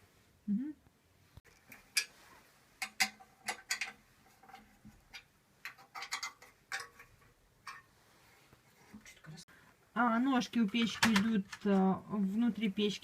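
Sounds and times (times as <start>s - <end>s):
hard objects clicking and tapping: 2.8s - 7.9s.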